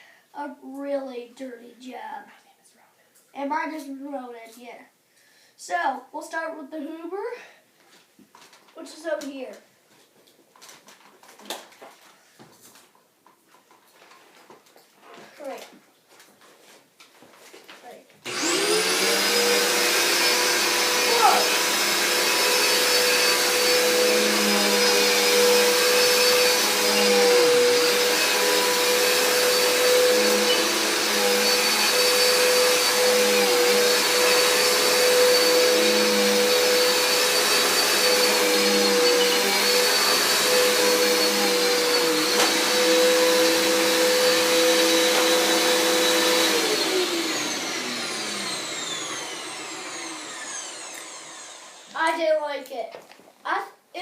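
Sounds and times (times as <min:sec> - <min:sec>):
vacuum cleaner running: 0:18.2 - 0:52.1
vacuum motor winding down: 0:18.3 - 0:52.0.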